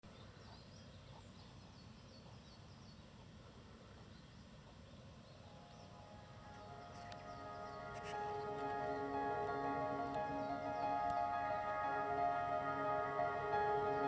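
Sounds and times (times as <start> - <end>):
bird chirping: 4.0 - 14.0.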